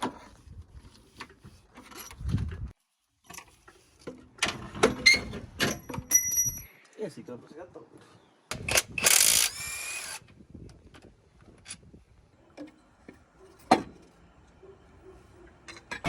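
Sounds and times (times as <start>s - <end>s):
tools and metal parts clinking: 3.3s - 6.8s, 15.6s - 16.0s
power tool whining: 9.0s - 10.2s.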